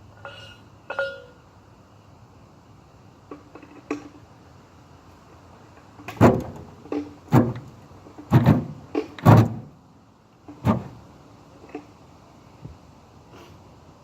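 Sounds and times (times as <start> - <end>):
ratchet metal clunks: 6.0 - 9.8.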